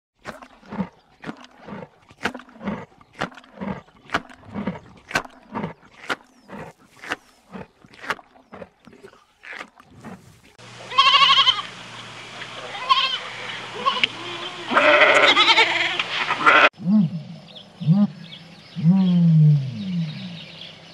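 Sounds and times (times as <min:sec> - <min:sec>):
wavering bleat: 0:10.9 - 0:11.7, 0:12.7 - 0:16.7.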